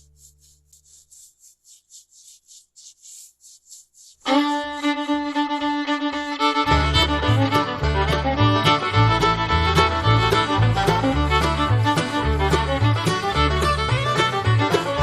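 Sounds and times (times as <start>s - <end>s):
bowed-string tune: 4.3s - 15.0s.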